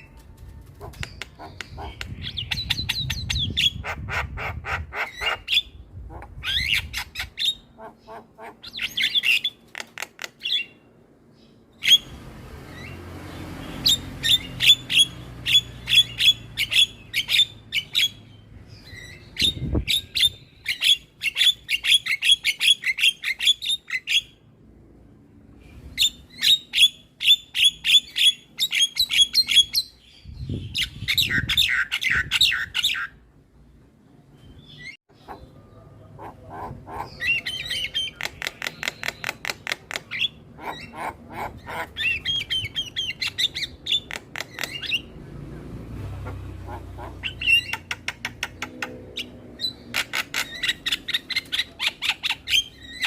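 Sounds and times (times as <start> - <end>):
myna bird harsh clicking chatter: 0.8 - 2.6, 9.2 - 10.5, 37.9 - 40.3, 43.1 - 44.9, 46.7 - 49.0.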